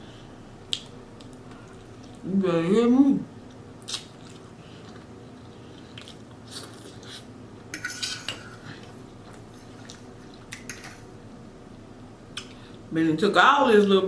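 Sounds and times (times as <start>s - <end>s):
utensils clinking on a plate: 7.7s - 8.9s.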